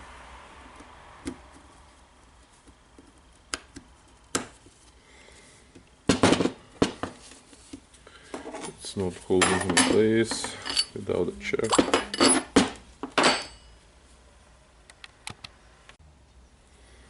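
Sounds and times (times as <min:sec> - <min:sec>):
small metal parts clinking: 0:09.4 - 0:13.8.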